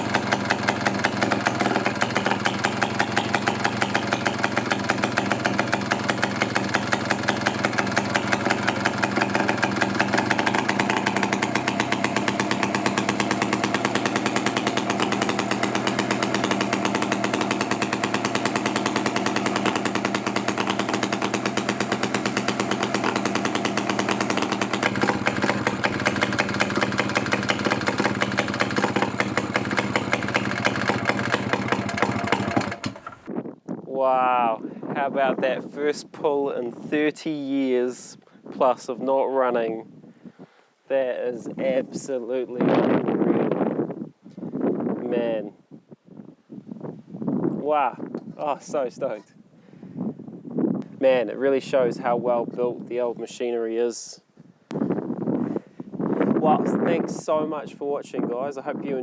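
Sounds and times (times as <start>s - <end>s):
two-stroke chainsaw engine running: 0.0s - 33.3s.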